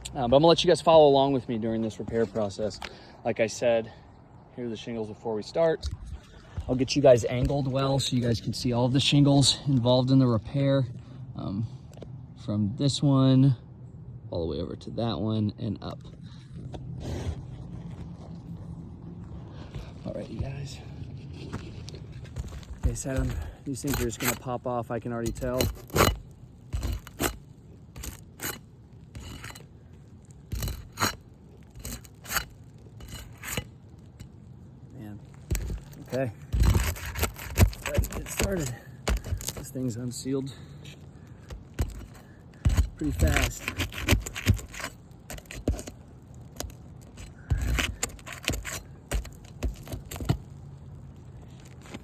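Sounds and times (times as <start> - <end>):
roof shingle being scraped: 16.3 - 18.5, 19.3 - 34.4, 35.2 - 52.0.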